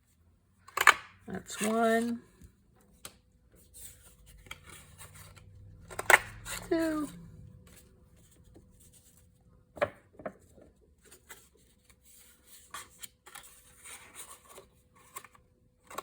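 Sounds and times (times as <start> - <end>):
paper rubbing and rustling: 11.0 - 15.4.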